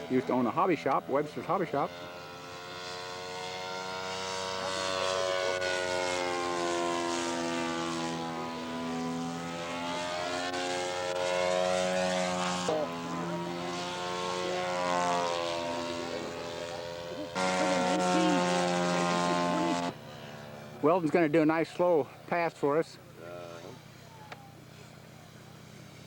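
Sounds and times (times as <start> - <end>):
model airplane propeller engine: 0.0 - 26.0.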